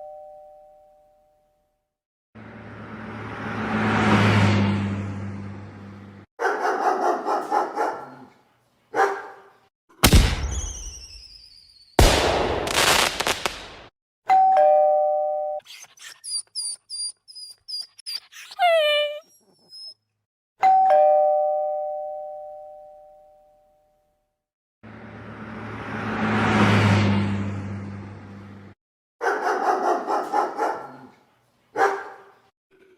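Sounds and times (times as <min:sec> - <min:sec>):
doorbell two-tone chime: 0:00.0 - 0:01.6, 0:14.3 - 0:15.6, 0:20.6 - 0:23.8.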